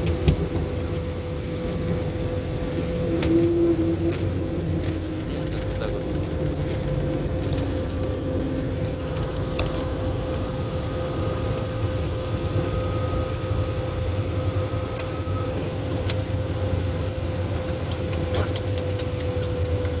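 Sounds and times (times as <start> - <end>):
constant hum: 0.0 - 20.0
plane cabin rumble: 0.0 - 20.0.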